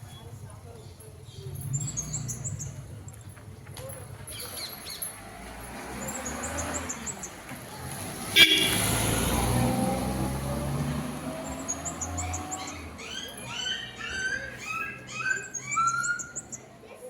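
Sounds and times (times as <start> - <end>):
passing vehicle rushing: 5.0 - 16.6.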